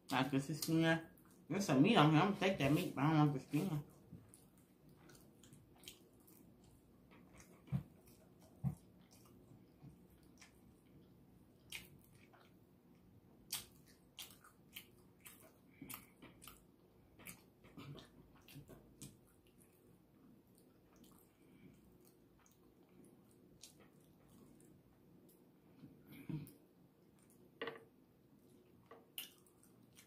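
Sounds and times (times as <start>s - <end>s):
person chewing with mouth clicks: 4.2s - 12.6s, 13.4s - 19.9s, 28.4s - 30.0s.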